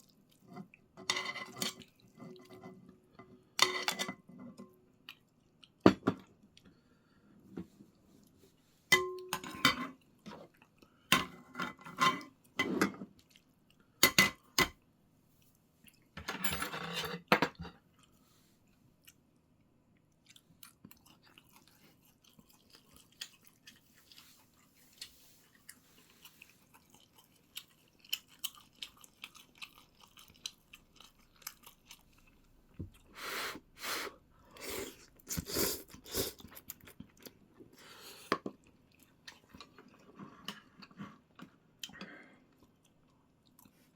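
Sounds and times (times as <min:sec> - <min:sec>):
cutlery and dishes clinking: 0:01.0 - 0:01.8, 0:03.6 - 0:04.3, 0:16.2 - 0:17.7
person chewing: 0:20.2 - 0:33.3, 0:34.4 - 0:43.9.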